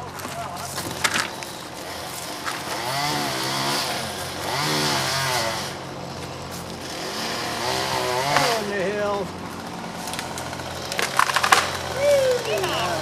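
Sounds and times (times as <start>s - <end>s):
chainsaw engine revving: 0.9s - 13.0s.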